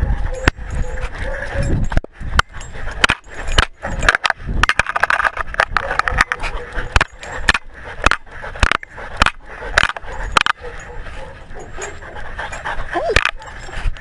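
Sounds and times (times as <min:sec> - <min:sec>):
dog panting: 0:00.0 - 0:04.1, 0:06.0 - 0:14.0.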